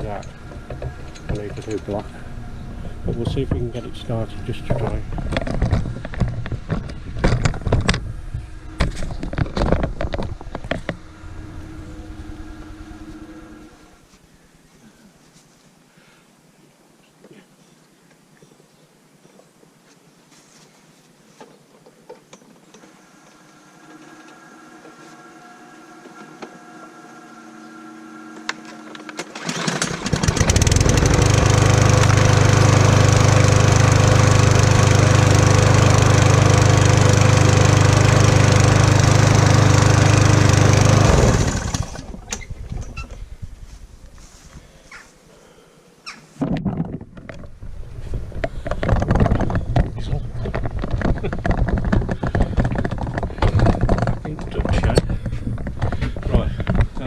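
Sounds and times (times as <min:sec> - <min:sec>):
lawn mower engine running: 0:00.0 - 0:14.1, 0:23.2 - 0:44.5, 0:47.2 - 0:57.0.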